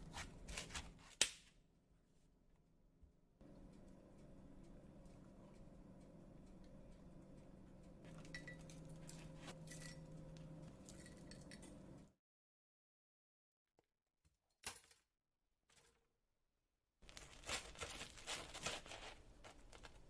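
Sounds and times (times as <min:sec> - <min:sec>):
kitchenware clinking: 0:08.1 - 0:10.2.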